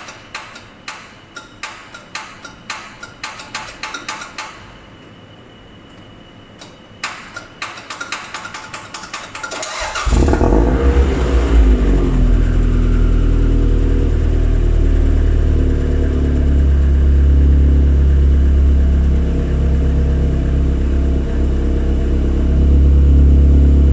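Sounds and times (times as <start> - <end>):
car engine starting and idling: 9.6 - 23.9.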